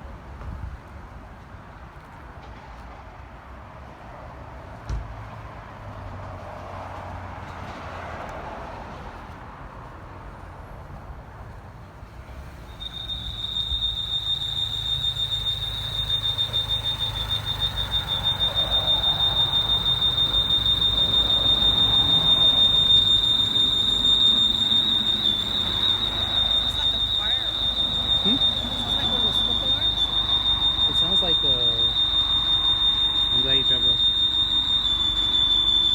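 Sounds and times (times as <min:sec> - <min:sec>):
high-pitched squeal from engine: 0:12.1 - 0:35.9
car engine running: 0:12.2 - 0:35.9.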